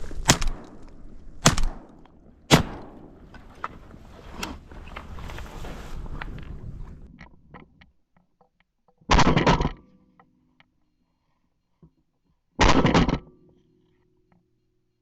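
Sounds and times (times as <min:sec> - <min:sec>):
shotgun shots: 0:00.0 - 0:03.4.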